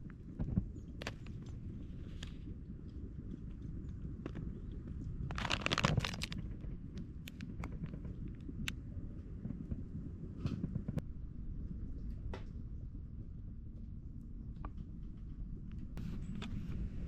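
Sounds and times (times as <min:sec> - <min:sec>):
low steady rumble: 0:00.0 - 0:17.0
clicks and knocks of items: 0:00.4 - 0:02.4, 0:05.2 - 0:08.8
packaging rustling: 0:05.3 - 0:06.4.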